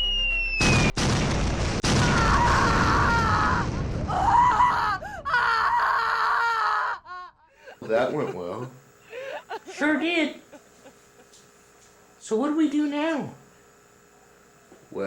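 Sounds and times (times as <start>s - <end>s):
explosion blast: 0.6s - 4.3s
long rumbling blast: 0.7s - 5.2s.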